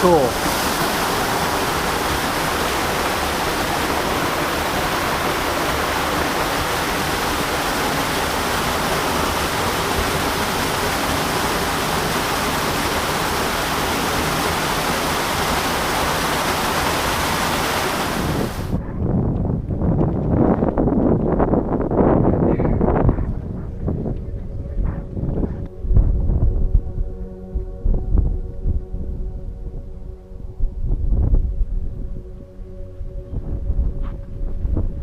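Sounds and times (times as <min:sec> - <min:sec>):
waterfall rushing: 0:00.0 - 0:18.7
wind buffeting microphone: 0:17.9 - 0:35.0.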